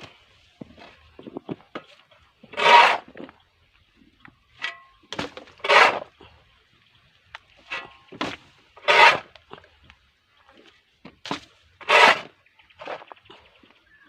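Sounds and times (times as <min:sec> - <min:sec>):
shovel scraping: 0:02.4 - 0:03.3, 0:04.6 - 0:06.2, 0:07.6 - 0:09.4, 0:11.2 - 0:13.2.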